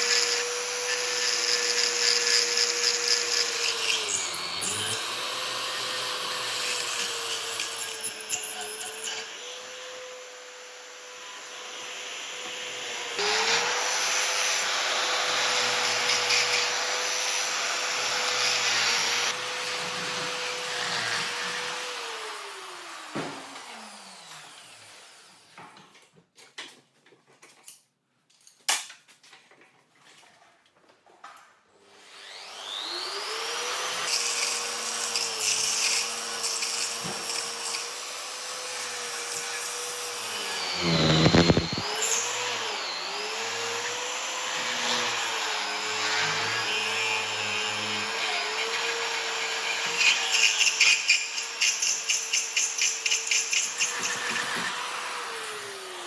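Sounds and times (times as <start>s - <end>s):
power tool motor whining: 0.0s - 21.7s, 22.4s - 25.2s, 32.2s - 52.2s.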